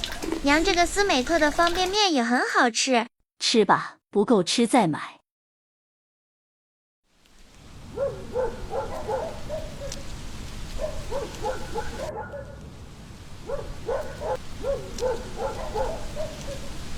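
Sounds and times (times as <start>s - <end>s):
steady background hiss: 7.1s - 16.9s
animal calling: 7.9s - 12.6s, 13.4s - 16.9s.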